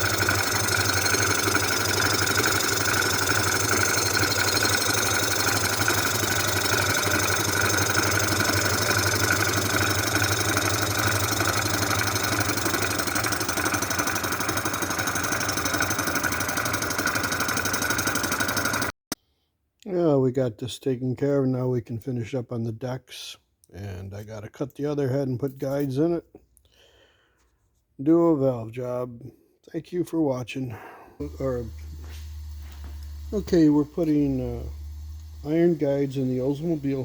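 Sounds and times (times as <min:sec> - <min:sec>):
surfacing machine whine and hum: 0:00.0 - 0:18.9, 0:31.2 - 0:37.0.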